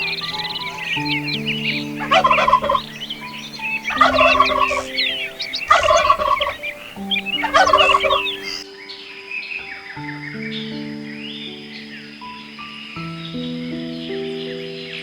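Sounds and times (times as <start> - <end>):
large bird rattling calls: 0.0 - 8.6
birds chirping: 0.0 - 15.0
soft piano music: 0.0 - 15.0.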